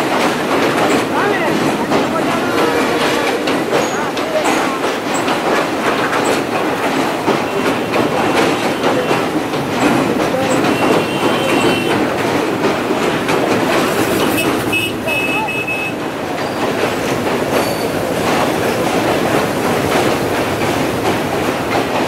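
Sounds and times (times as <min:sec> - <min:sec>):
train wheels clattering on track: 0:00.0 - 0:22.0
high wheel squeal: 0:17.6 - 0:18.1.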